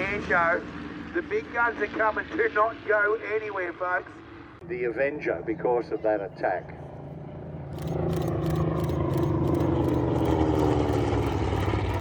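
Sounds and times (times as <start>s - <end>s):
propeller aircraft flying past: 0.0s - 3.5s, 6.9s - 12.0s.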